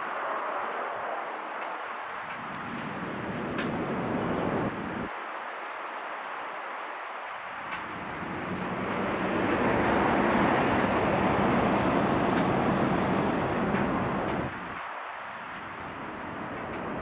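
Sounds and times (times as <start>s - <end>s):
jet engines rushing: 7.7s - 14.8s.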